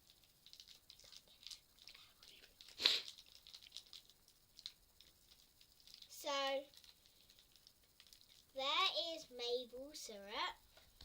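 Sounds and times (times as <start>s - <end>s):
packaging tearing: 0.0s - 6.1s
toy packaging rustling: 0.4s - 8.6s.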